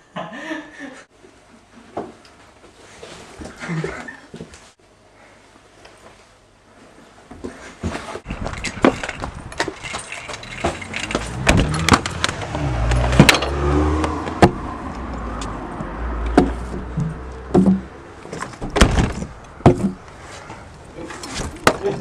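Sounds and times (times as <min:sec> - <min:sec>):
clattering knocks and clicks: 0:08.2 - 0:14.6.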